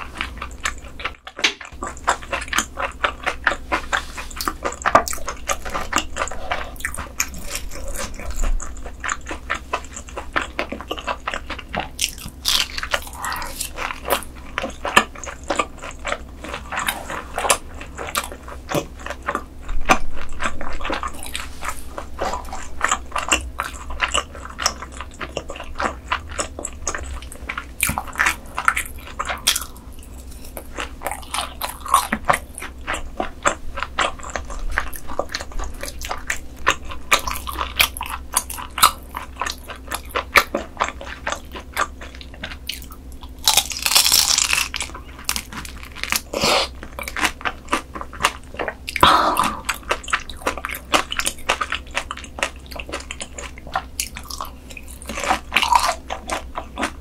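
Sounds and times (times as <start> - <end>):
crunchy bites and wet chewing: 0.0 - 57.0.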